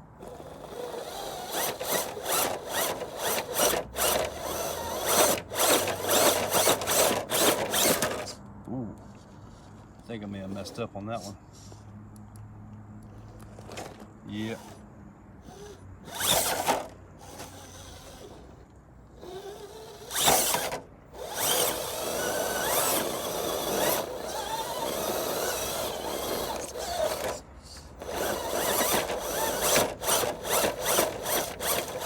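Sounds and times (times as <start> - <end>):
electric motor whining: 0.2 - 8.4, 15.4 - 18.6, 19.2 - 32.0.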